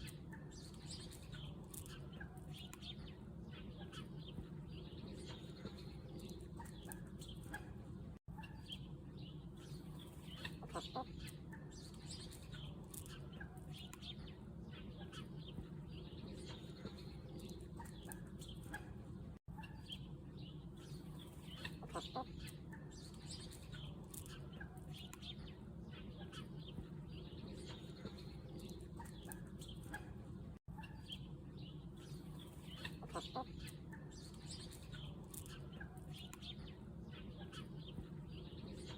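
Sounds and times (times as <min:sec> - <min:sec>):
small birds chirping: 0:00.0 - 0:38.9
chickens clucking: 0:10.1 - 0:11.8, 0:21.2 - 0:25.3, 0:32.4 - 0:36.5.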